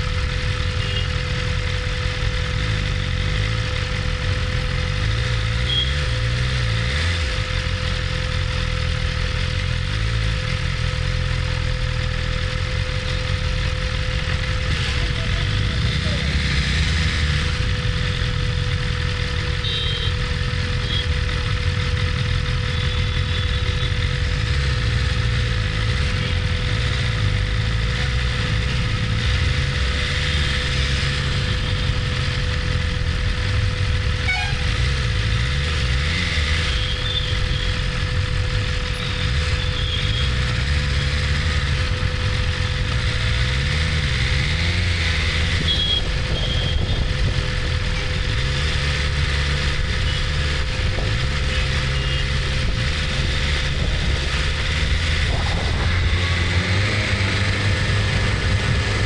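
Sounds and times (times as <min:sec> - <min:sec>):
motorcycle engine running: 0:00.0 - 0:59.0
road traffic: 0:00.0 - 0:59.0
car horn toots: 0:19.6 - 0:21.1, 0:34.2 - 0:34.9, 0:45.6 - 0:47.1.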